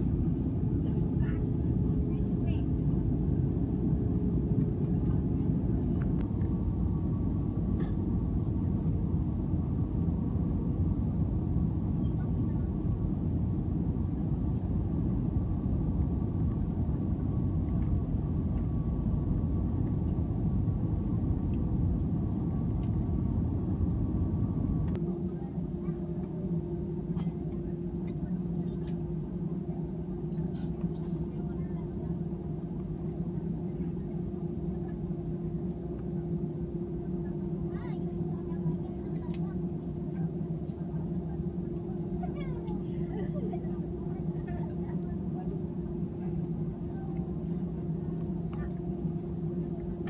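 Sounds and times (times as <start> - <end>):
airplane cabin rumble: 0.0 - 50.0
faint steady hum: 0.0 - 50.0.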